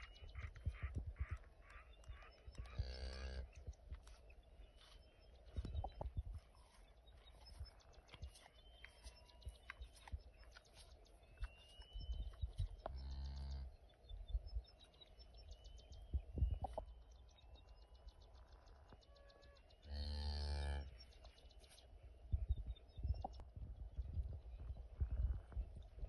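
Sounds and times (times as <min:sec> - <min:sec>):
animals moving and rustling: 0:00.2 - 0:13.0.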